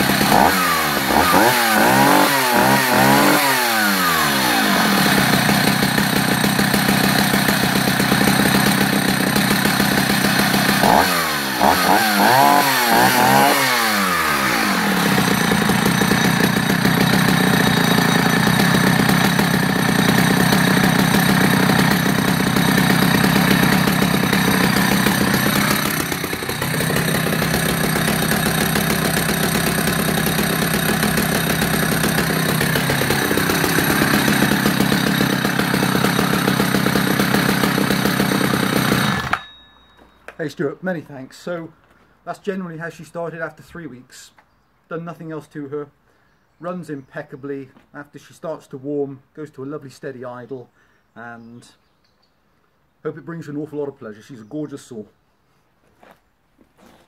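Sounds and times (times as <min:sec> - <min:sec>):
chainsaw revving and idling: 0:00.0 - 0:39.6.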